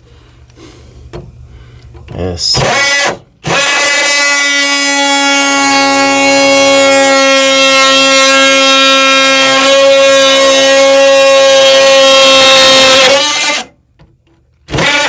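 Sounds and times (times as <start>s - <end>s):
power tool cutting wood: 2.4s - 13.8s, 14.7s - 15.0s.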